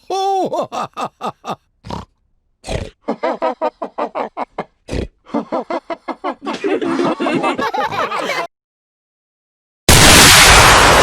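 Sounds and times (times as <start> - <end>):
cartoon characters laughing: 0.1 - 1.6, 3.0 - 8.5
cartoon pig snorting: 1.8 - 3.1, 4.8 - 5.3.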